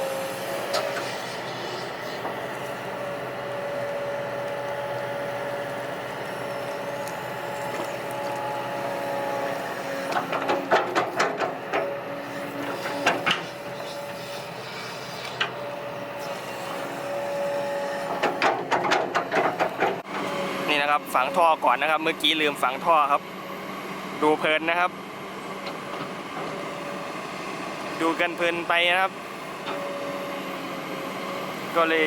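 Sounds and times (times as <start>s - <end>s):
excavator mechanical whine: 0.0s - 32.0s
sharp clanks and knocks: 10.1s - 11.9s, 18.1s - 20.1s.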